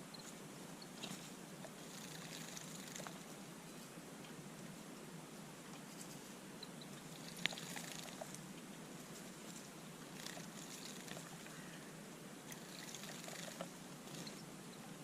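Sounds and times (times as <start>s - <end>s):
steady low hiss: 0.0s - 15.0s
birds tapping: 6.6s - 8.4s, 10.1s - 11.8s, 12.5s - 15.0s
small water splashes: 7.1s - 8.3s, 10.2s - 11.5s, 12.5s - 13.7s.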